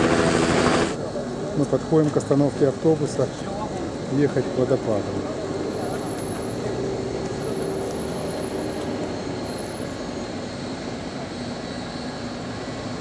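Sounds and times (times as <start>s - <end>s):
low hum: 0.0s - 1.0s
bus engine rumble: 0.0s - 1.6s.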